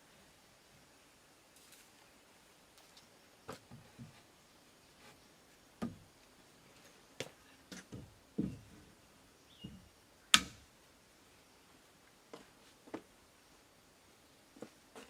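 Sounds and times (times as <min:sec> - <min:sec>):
dull thuds: 0:07.9 - 0:08.7.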